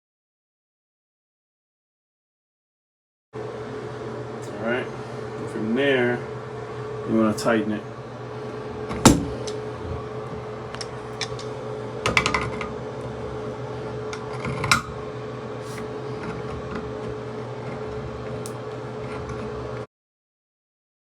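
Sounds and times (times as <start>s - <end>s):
steady hum: 3.4s - 19.9s.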